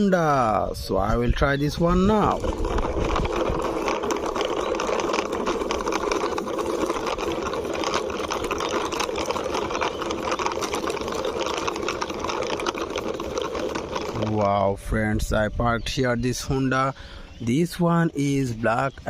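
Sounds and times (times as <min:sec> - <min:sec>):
toy vehicle wheels rolling: 0:00.0 - 0:19.0.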